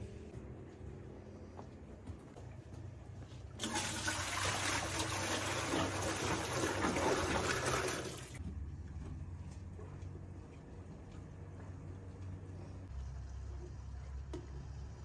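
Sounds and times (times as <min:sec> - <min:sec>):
water pouring in a stream: 0:03.6 - 0:08.4.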